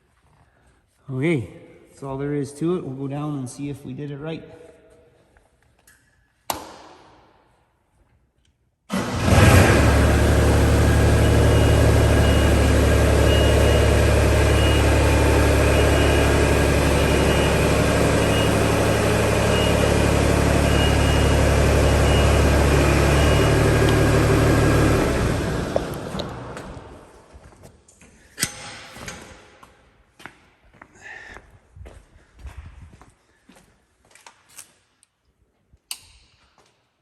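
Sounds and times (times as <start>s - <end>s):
motor humming drone: 9.4s - 26.4s.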